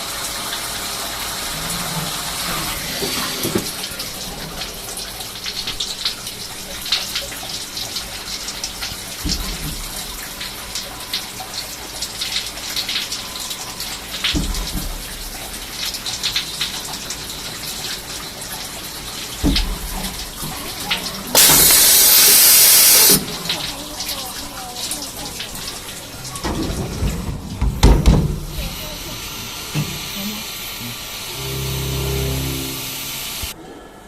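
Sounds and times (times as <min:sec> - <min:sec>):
loud even hiss: 0:21.3 - 0:23.2, 0:28.5 - 0:33.6
cutting oil splashing: 0:21.3 - 0:23.4, 0:28.4 - 0:33.6
lathe running: 0:28.6 - 0:33.6.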